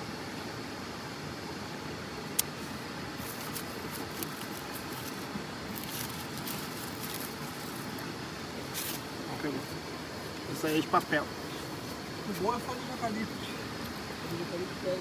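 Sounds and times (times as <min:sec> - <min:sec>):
dry leaves crackling and rustling: 0:03.1 - 0:10.7.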